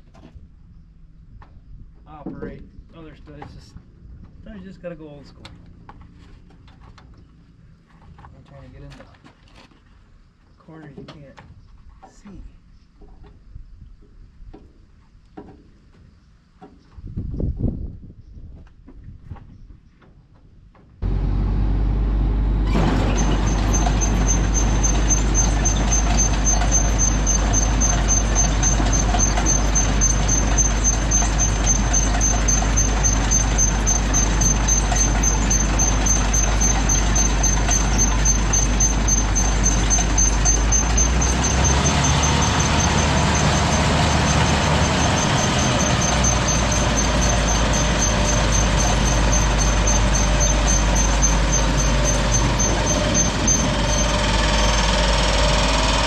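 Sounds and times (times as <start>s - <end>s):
vehicle engine drone: 21.0s - 56.0s.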